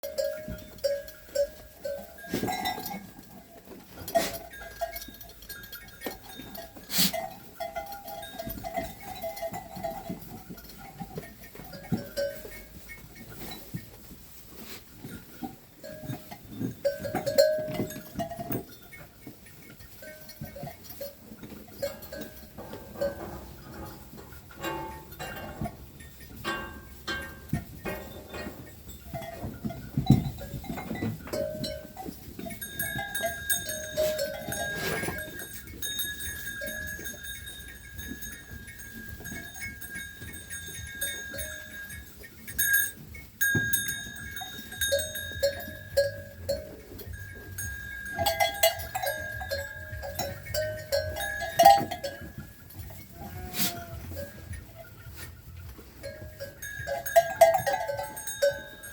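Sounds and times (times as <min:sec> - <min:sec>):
animal bells ringing: 0:00.0 - 0:58.9
sheep and goats bleating: 0:05.6 - 0:11.0, 0:31.3 - 0:55.6.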